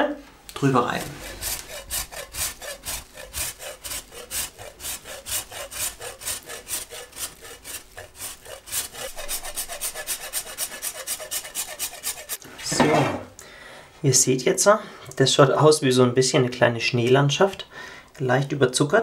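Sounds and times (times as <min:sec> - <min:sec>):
wax rasping on a grater: 0:00.7 - 0:12.4.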